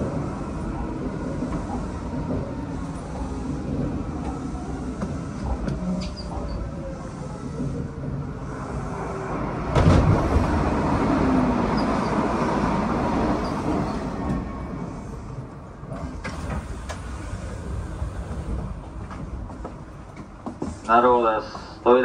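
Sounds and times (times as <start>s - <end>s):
electric train rush: 0.0s - 22.0s.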